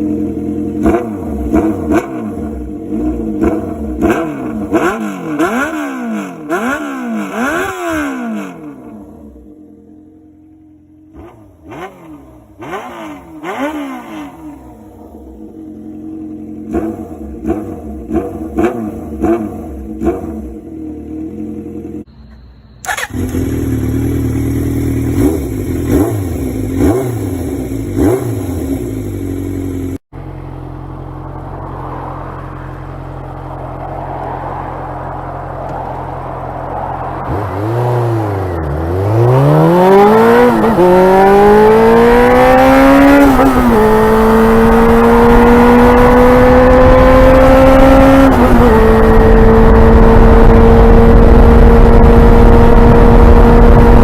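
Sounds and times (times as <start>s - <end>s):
motorcycle engine revving: 0.0s - 54.0s
rushing noise: 30.9s - 42.6s.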